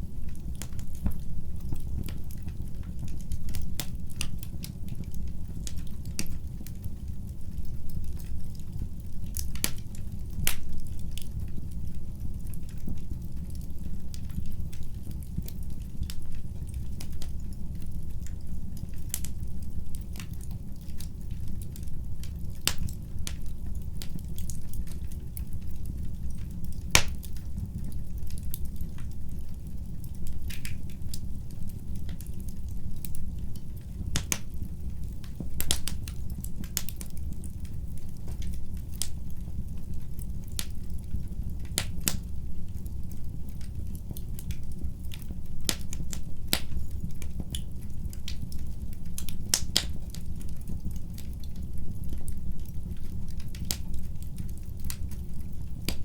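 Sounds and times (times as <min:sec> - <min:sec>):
low fire rumble: 0:00.0 - 0:56.0
wood fire crackling and popping: 0:00.0 - 0:56.0.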